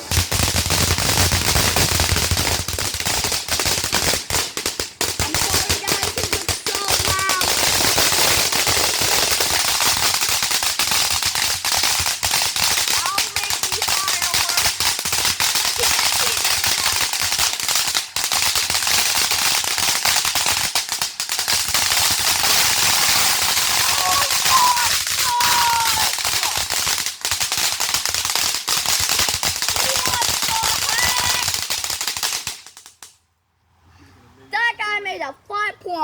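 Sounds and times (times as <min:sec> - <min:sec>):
firecrackers popping rapidly: 0:00.0 - 0:33.2.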